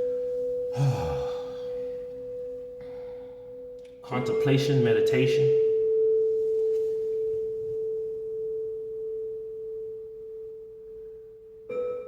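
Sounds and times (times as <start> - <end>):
pure ringing tone: 0.0 - 12.0.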